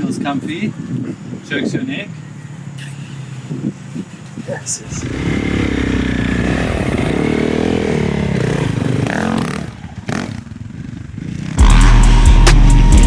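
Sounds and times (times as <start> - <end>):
dirt bike engine running hard: 4.8 - 13.0.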